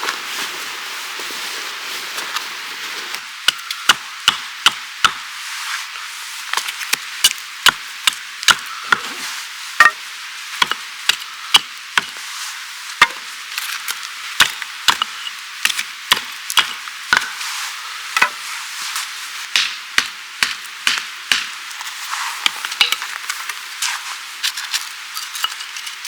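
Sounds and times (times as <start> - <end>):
steady hiss: 0.0 - 26.0
wood being chopped: 3.5 - 5.2, 6.9 - 9.2, 9.8 - 10.0, 10.6 - 12.2, 13.0 - 13.3, 14.4 - 17.4, 18.2 - 18.4, 19.5 - 21.6, 22.6 - 23.1.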